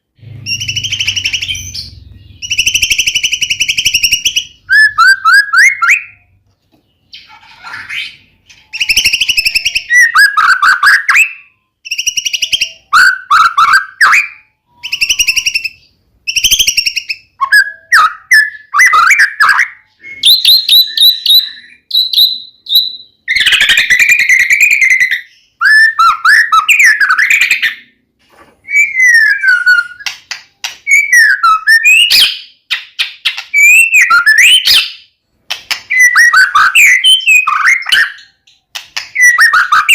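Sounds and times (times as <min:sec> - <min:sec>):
bird singing whistles and trills: 0:00.2 - 0:28.0, 0:28.6 - 0:35.2, 0:35.9 - 0:39.9.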